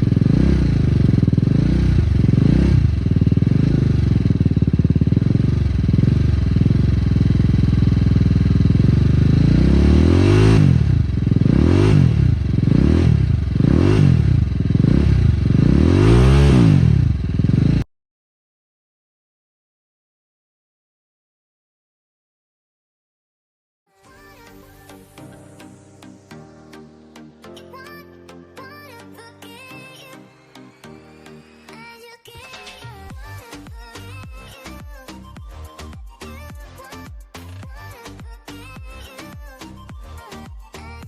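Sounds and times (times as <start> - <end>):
motorcycle engine revving: 0.0 - 17.9.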